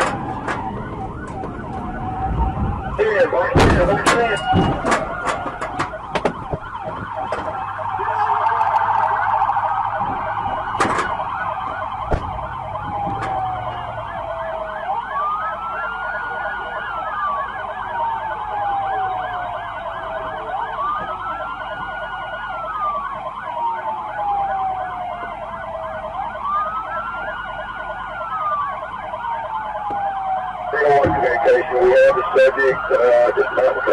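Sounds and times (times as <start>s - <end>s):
police siren wail: 0.0s - 33.9s
police siren yelp: 0.0s - 33.9s
sharp knocks: 3.6s - 7.6s, 12.1s - 13.4s.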